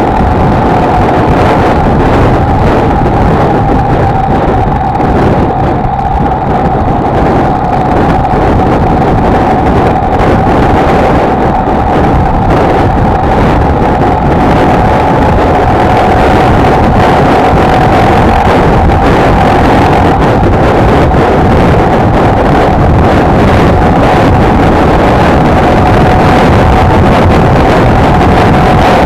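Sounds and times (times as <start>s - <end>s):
motorcycle engine cruising: 0.0s - 29.0s
wind noise on microphone: 0.0s - 29.0s.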